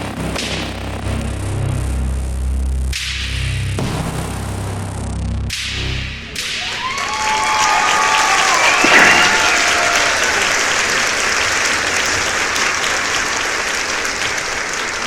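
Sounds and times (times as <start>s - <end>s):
crowd applauding: 6.5s - 15.0s.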